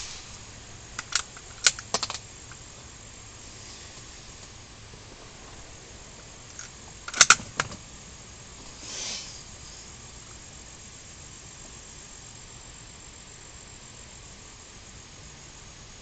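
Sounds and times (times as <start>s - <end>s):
soft hiss: 0.0s - 16.0s
rifle clicking and clacking: 1.0s - 2.6s, 6.5s - 7.8s.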